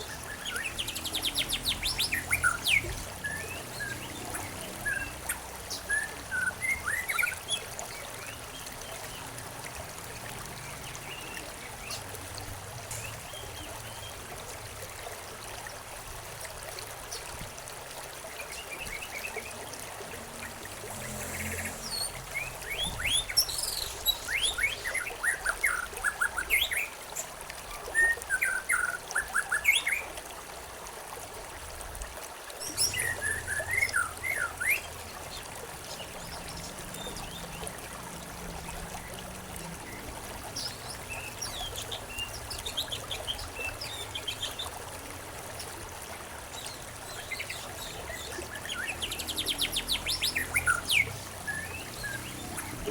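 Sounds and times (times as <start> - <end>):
small birds chirping: 0.0 - 9.3, 18.5 - 26.9, 32.6 - 44.8, 46.5 - 52.9
running water trickling: 0.0 - 52.9.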